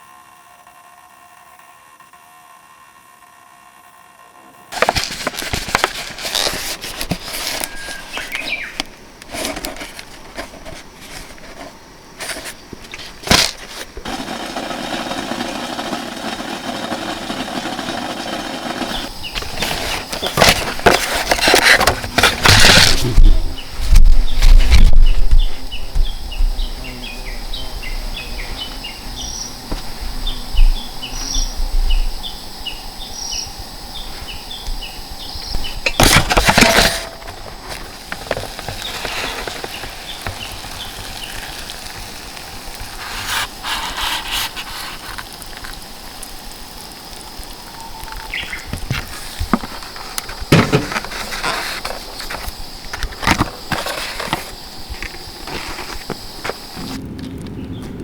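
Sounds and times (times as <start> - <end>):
insect high-pitched trill: 0.0 - 57.0
insect short chirping calls: 4.6 - 57.7
knocks and rustles of handling: 4.7 - 14.1, 17.0 - 25.4, 35.6 - 45.8, 48.7 - 57.1.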